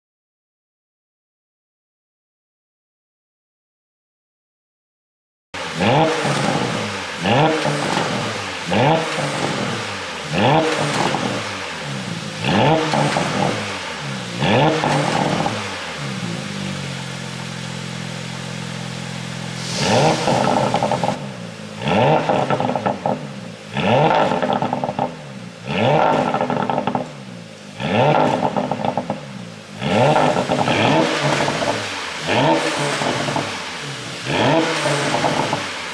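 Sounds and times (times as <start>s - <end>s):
car engine idling: 5.6s - 35.9s
car engine revving: 5.6s - 35.9s.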